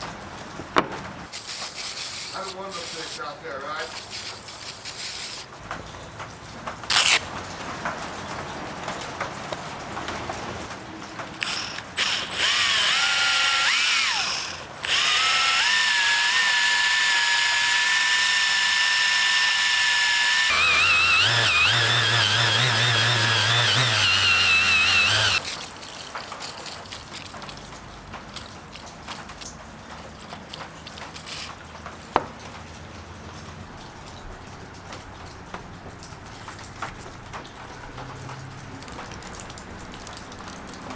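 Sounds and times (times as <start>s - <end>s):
electric power tool whining: 1.4s - 3.2s, 6.9s - 7.3s, 11.4s - 27.3s.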